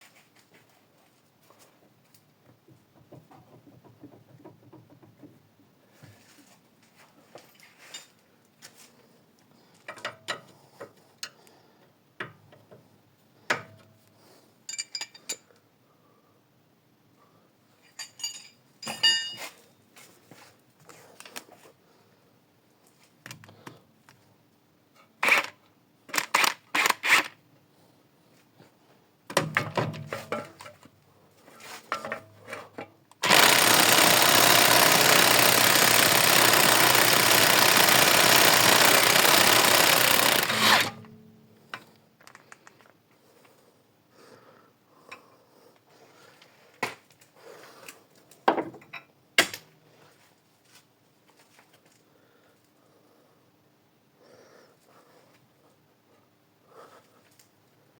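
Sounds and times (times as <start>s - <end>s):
tools clinking against metal: 14.7s - 15.5s, 17.8s - 19.6s
power tool running: 33.2s - 41.1s.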